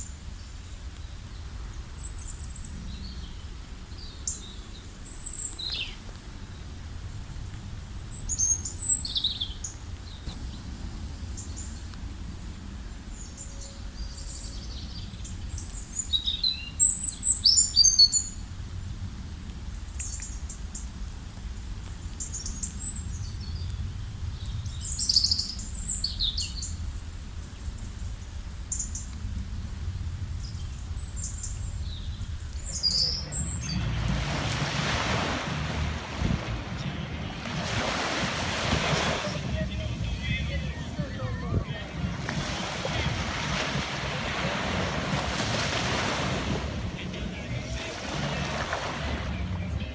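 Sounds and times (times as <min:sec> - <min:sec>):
small birds chirping: 0:00.0 - 0:06.6, 0:08.1 - 0:18.4, 0:22.1 - 0:26.8, 0:30.0 - 0:49.1
steady low rumble: 0:29.1 - 0:49.9
broad rush of noise: 0:32.5 - 0:49.9.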